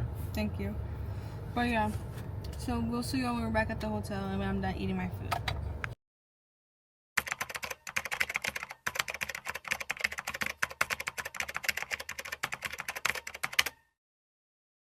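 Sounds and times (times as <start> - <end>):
keyboard typing clicks: 7.2 - 13.8.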